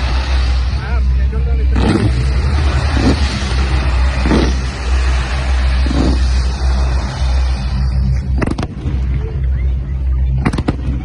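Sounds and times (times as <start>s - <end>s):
low rumble and hiss: 0.0s - 11.0s
fireworks booming: 1.7s - 9.2s, 10.4s - 11.0s.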